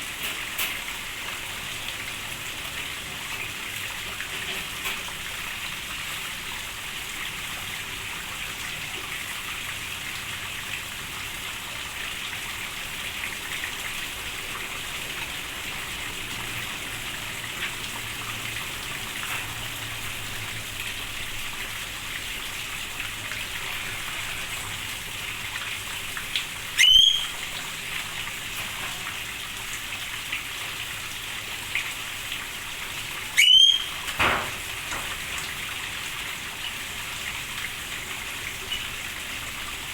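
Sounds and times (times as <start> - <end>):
steady rain falling: 0.0 - 39.9
upward-sweeping bird calls: 26.8 - 27.5, 33.4 - 34.0.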